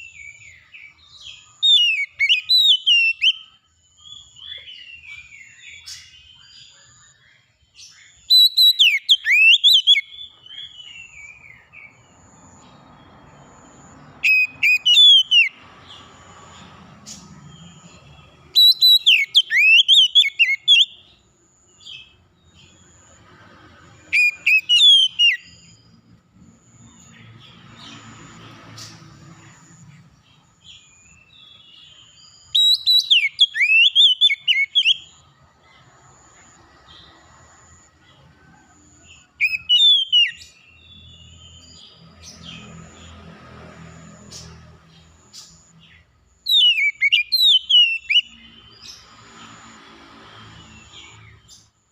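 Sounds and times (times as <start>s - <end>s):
songbird whistled phrases: 1.6s - 3.5s, 8.3s - 10.1s, 14.2s - 15.6s, 18.6s - 21.0s, 24.1s - 25.6s, 32.5s - 35.1s, 39.4s - 40.4s, 46.5s - 48.4s.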